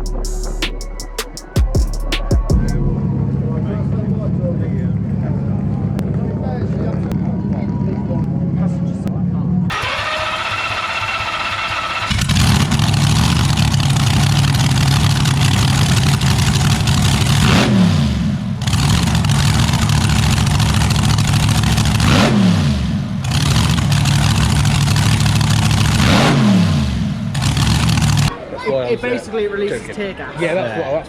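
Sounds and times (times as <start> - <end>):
car engine revving: 9.7 - 28.3.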